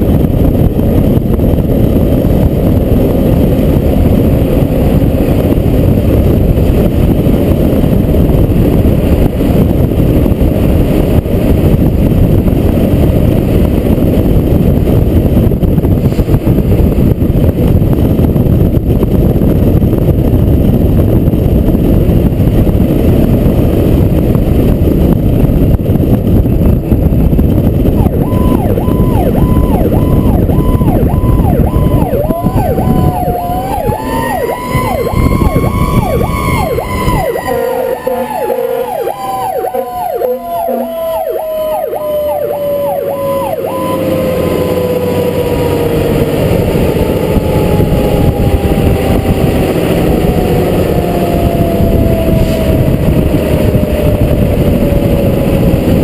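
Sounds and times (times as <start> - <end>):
fire truck engine and road noise: 0.0 - 56.0
siren pulsing: 27.8 - 56.0
siren winding upward: 28.0 - 55.8.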